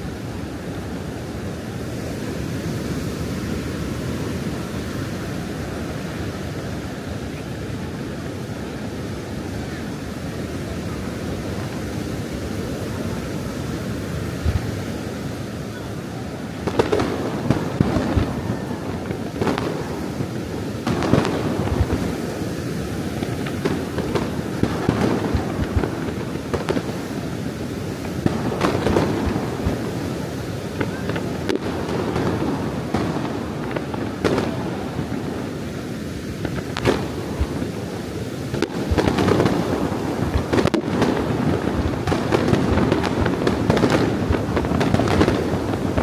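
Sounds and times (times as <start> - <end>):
surf: 0.0 - 46.0
wind: 0.0 - 46.0
firework bangs: 15.7 - 46.0.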